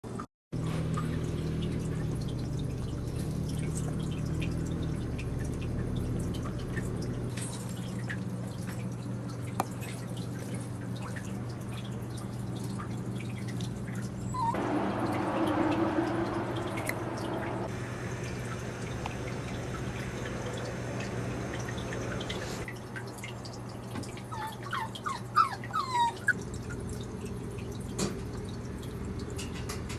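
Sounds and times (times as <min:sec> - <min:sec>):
puppies wet clicks and smacking: 0:00.9 - 0:15.8, 0:18.9 - 0:29.9
steady low hum: 0:01.0 - 0:22.8.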